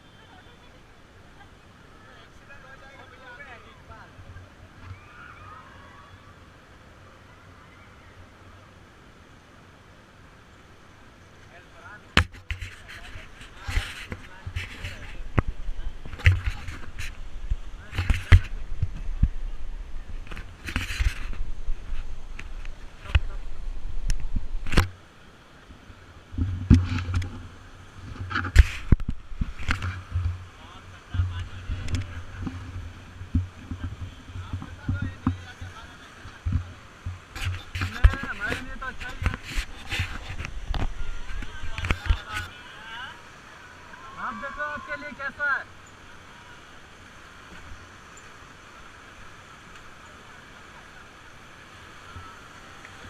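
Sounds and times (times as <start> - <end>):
river water rushing: 0.0 - 53.0
wind rumble on microphone: 12.2 - 25.0, 26.2 - 42.5.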